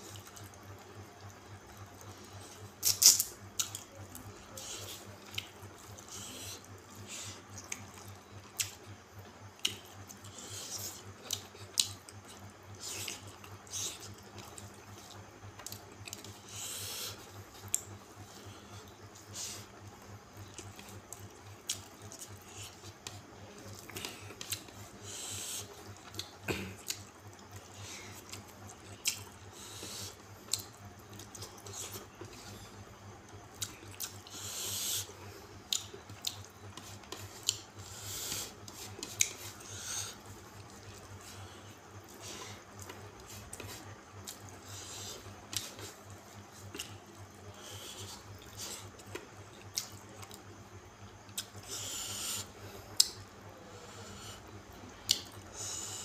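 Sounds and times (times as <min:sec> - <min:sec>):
chewing: 0:00.1 - 0:08.9, 0:09.6 - 0:19.7, 0:20.4 - 0:35.1, 0:35.7 - 0:50.5, 0:51.3 - 0:53.2
wet mouth clicks and smacks: 0:55.1 - 0:55.4.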